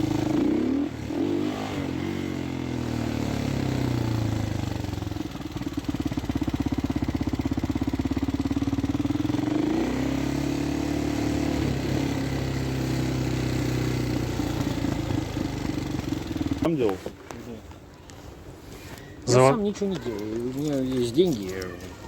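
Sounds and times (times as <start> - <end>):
motorcycle engine running: 0.0 - 16.8.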